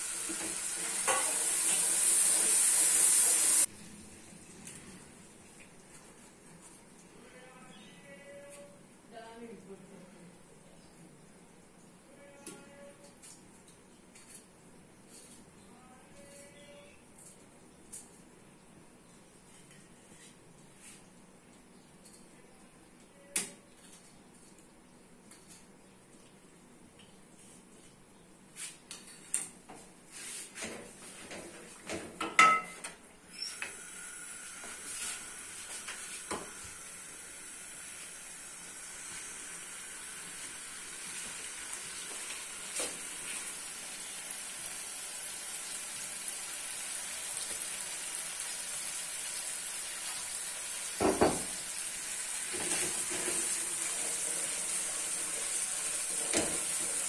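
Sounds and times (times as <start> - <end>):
curry sizzling in hot oil: 0.0 - 3.7, 33.8 - 57.0.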